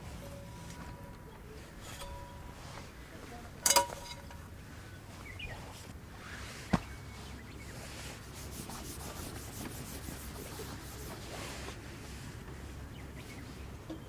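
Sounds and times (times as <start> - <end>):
knife blade rubbing: 8.4 - 11.2.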